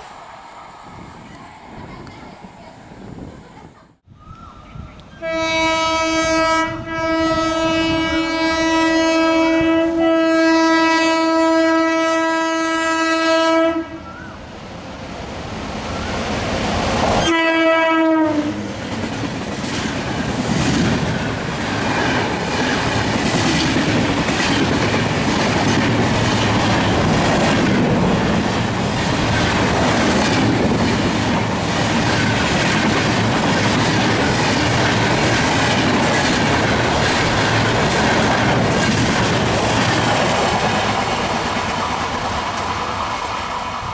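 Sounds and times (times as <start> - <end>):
train rushing past: 0.0 - 43.9
train horn: 5.2 - 14.3, 17.2 - 18.7
wheels clacking over rail joints: 18.6 - 43.9.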